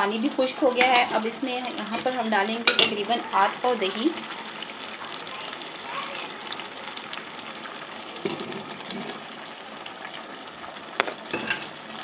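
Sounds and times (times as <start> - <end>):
food sizzling in a pot: 0.0 - 12.0
spoon clinking against pot: 2.7 - 3.0.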